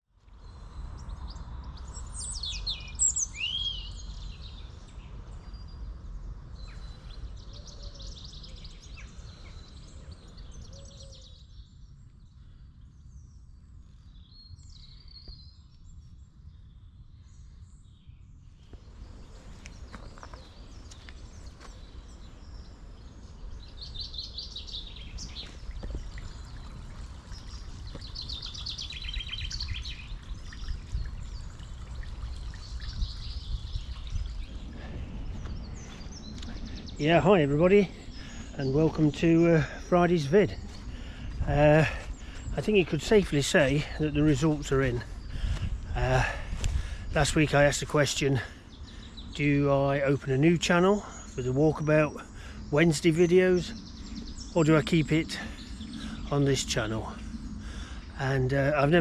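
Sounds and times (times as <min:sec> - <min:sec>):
birds singing and calling: 0:00.3 - 0:59.0
steady low rumble: 0:11.8 - 0:50.4.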